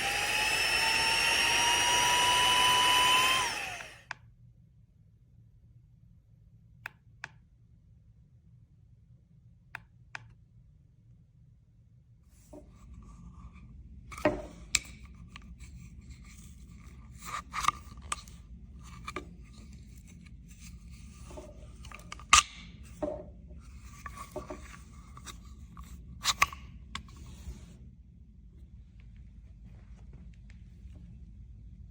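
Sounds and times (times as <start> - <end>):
clicks and scrapes of handling: 12.4 - 27.8
low steady rumble: 17.9 - 31.9.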